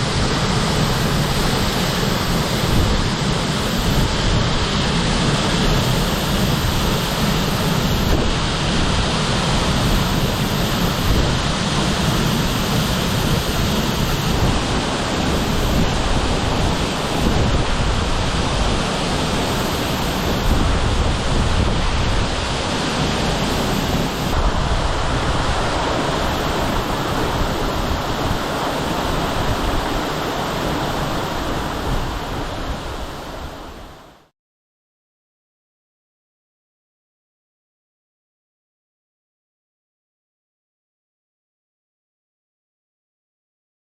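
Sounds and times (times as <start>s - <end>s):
waterfall rushing: 0.0s - 33.6s.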